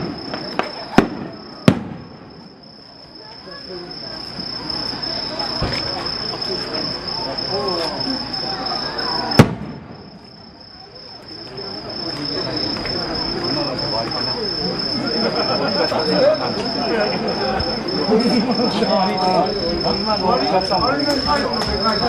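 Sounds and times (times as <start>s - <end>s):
low firework thud: 0.0s - 2.5s, 9.4s - 10.3s
fireworks bang: 0.0s - 2.6s, 5.4s - 6.2s, 9.2s - 10.6s
high insect trill: 0.0s - 22.0s.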